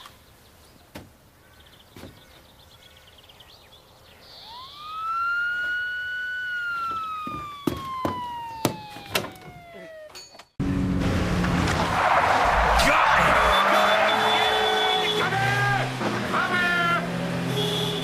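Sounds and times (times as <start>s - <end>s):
police car siren wailing: 4.4s - 10.2s, 11.8s - 15.9s
sharp knocks: 6.9s - 9.6s.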